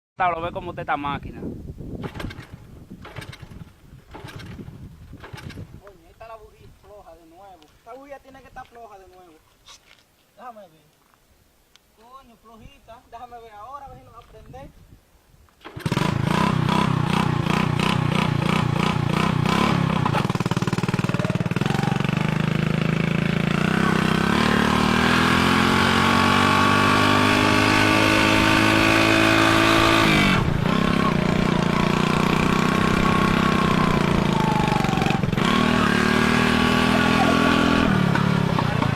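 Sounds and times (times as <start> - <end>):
motorcycle engine revving and idling: 2.0 - 6.0, 15.6 - 38.9.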